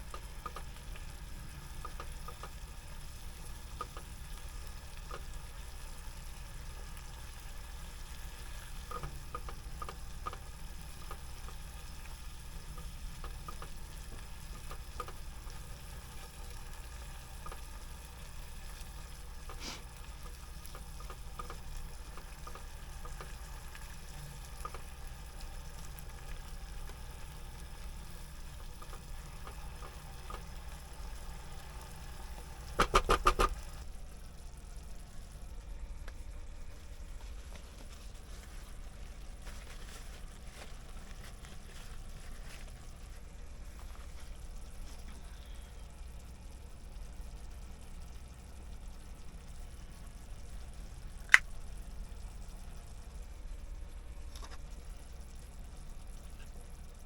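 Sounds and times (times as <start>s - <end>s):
food sizzling in a frying pan: 0.0s - 35.6s.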